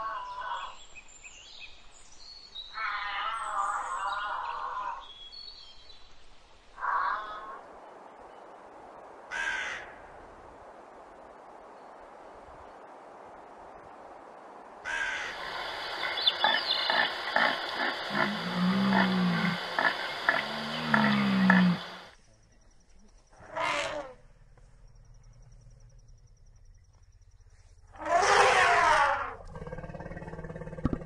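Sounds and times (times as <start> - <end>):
elephant calling: 15.1 - 22.1
deer stags roaring: 16.5 - 22.1.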